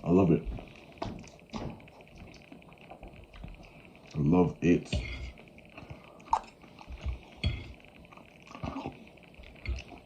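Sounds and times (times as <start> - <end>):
person chewing: 5.0 - 10.0.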